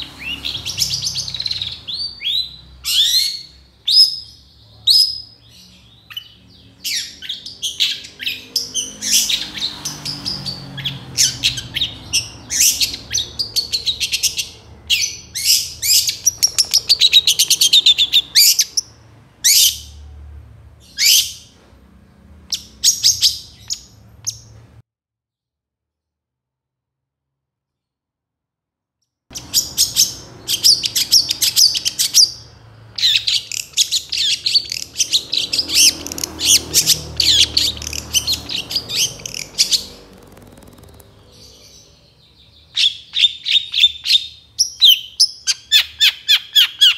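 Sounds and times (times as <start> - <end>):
bird singing chattering trills: 0.0 - 19.8, 29.3 - 46.9.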